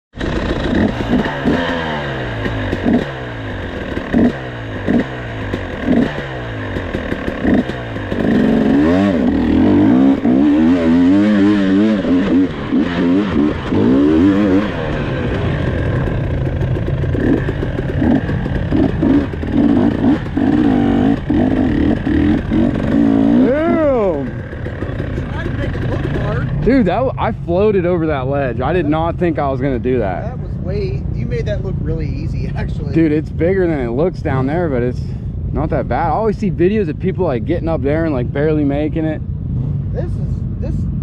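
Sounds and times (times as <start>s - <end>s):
off-road vehicle engine revving: 0.2s - 41.0s.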